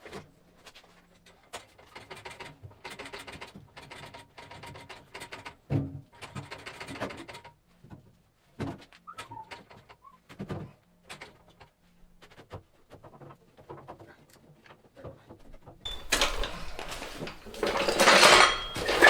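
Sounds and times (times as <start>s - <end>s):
metal knocks and clunks: 15.9s - 19.0s.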